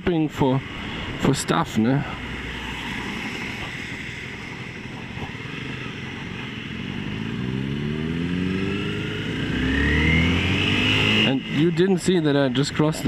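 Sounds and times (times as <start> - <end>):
motorcycle engine accelerating: 2.6 - 13.0.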